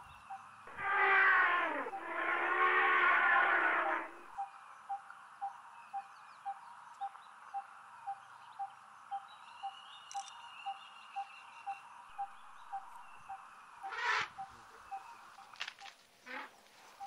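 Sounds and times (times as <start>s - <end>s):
bird calling a low note: 0.7s - 4.5s.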